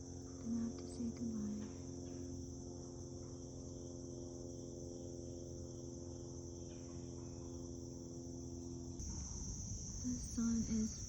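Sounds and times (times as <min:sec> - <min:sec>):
crickets chirping: 0:00.0 - 0:11.0
faint low hum: 0:00.0 - 0:11.0.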